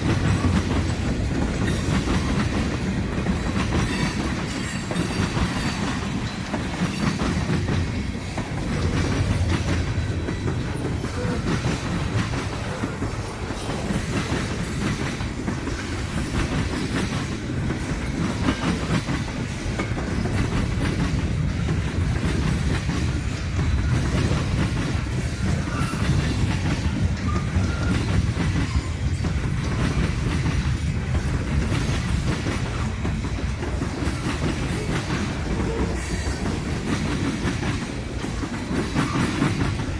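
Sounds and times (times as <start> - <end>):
train rumbling past: 0.0 - 39.9
wheels clacking over rail joints: 0.0 - 39.9.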